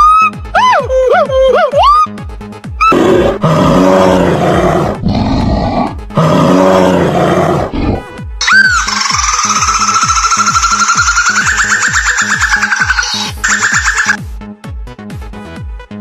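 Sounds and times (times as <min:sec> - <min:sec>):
large animal roaring: 0:02.9 - 0:08.2.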